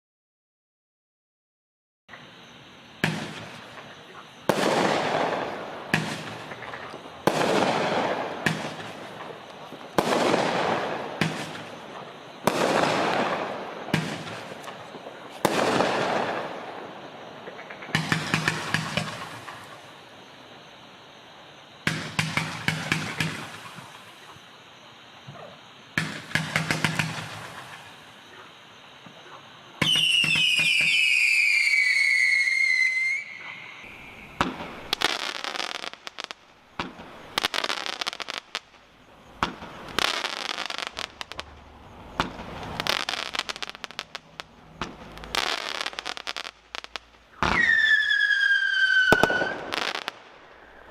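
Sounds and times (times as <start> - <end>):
crackle and hiss of fireworks: 2.1 - 50.9.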